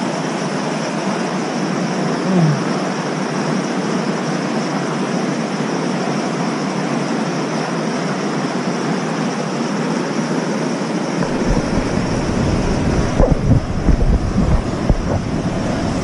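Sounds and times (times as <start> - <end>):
stream water rushing: 11.2 - 16.0.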